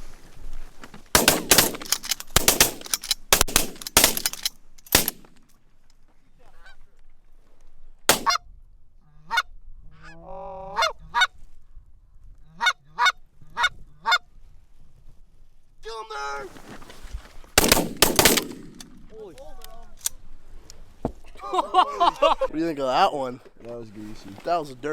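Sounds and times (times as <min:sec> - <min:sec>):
shotgun shots: 0:01.2 - 0:05.4, 0:08.1 - 0:08.4, 0:17.6 - 0:19.1
goose honks and clucks: 0:09.2 - 0:11.3, 0:12.4 - 0:14.3.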